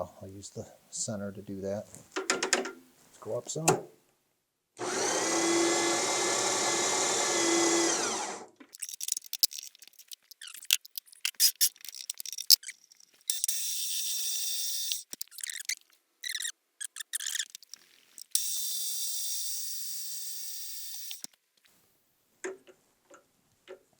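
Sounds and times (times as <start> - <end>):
machine tool motor running: 4.8 - 8.5
thin motor whir: 4.8 - 8.5
metal parts clicking: 8.7 - 18.8.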